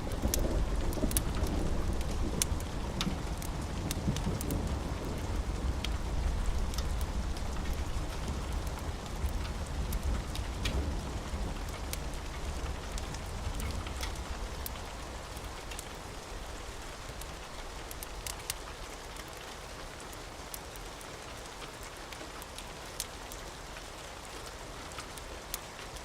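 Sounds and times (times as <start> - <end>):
steady rain: 0.0 - 26.0
wood fire crackling: 0.0 - 26.0.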